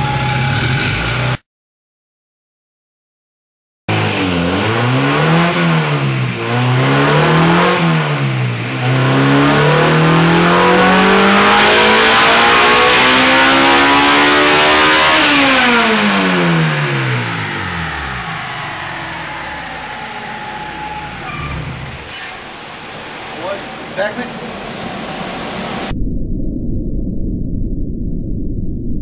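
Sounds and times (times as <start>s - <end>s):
race engine revving: 3.9s - 25.9s.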